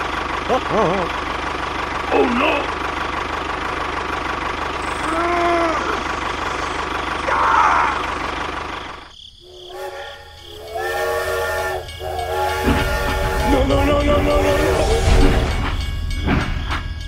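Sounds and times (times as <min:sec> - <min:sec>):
engine running steadily: 0:00.0 - 0:09.1
steam locomotive whistle blasts: 0:09.6 - 0:15.6.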